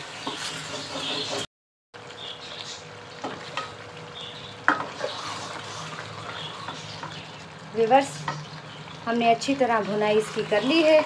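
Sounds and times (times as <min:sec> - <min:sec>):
frying sizzle: 0:00.0 - 0:11.0
spoon stirring thick gravy: 0:04.7 - 0:07.5.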